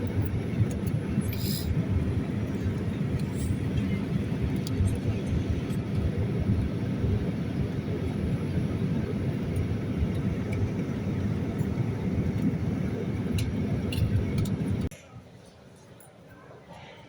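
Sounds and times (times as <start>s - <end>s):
jet engine low rumble: 0.0s - 14.9s.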